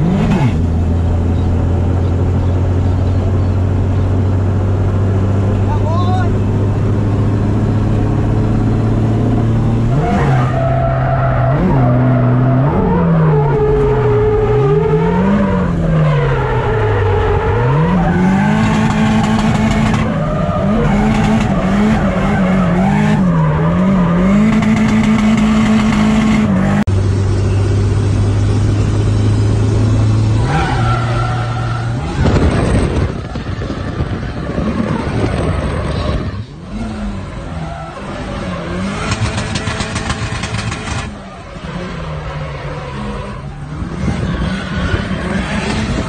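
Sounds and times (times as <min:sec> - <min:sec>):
car engine revving: 0:00.0 - 0:46.0.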